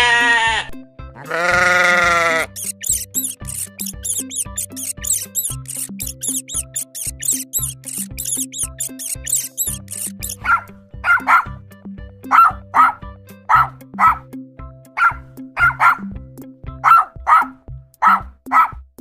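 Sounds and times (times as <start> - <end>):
background music with beat: 0.0 - 19.0
dog barking: 10.3 - 11.6, 12.3 - 14.2, 15.0 - 16.1, 16.8 - 18.8.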